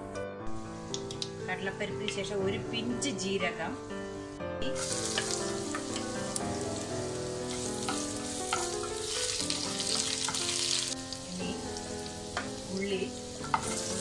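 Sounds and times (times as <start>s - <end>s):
soft background music: 0.0s - 14.0s
food sizzling in hot oil: 4.6s - 14.0s
spatula tapping pan: 5.0s - 6.4s, 7.5s - 10.7s, 12.3s - 12.6s, 13.4s - 14.0s.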